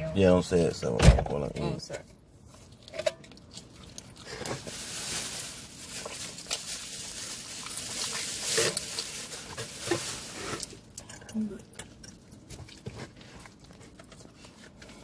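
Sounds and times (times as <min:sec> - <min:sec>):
person chewing pizza: 0:02.4 - 0:04.7, 0:10.4 - 0:15.0.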